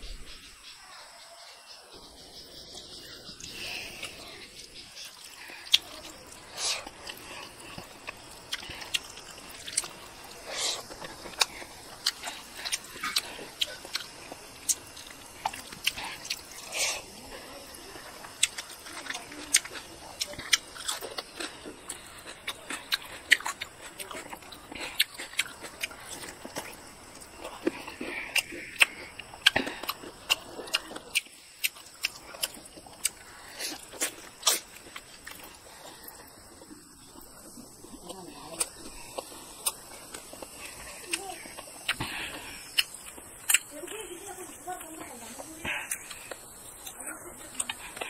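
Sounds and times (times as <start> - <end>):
wet lip smacks and chewing: 5.0 - 17.1, 18.2 - 43.7.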